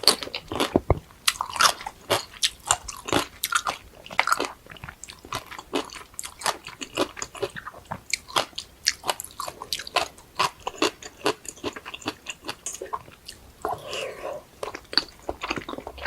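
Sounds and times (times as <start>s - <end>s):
chewing and crunching food: 0.0s - 16.0s.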